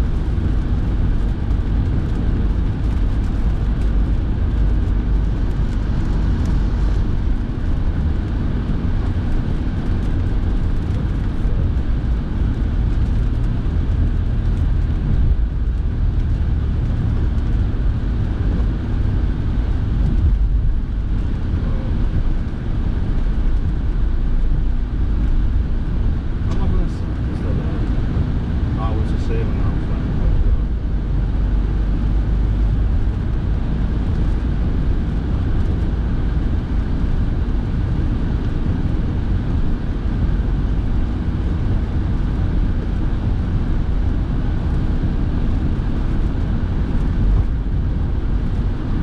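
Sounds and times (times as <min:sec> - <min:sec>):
road and engine rumble: 0:00.0 - 0:49.0
heater fan blowing: 0:16.4 - 0:49.0.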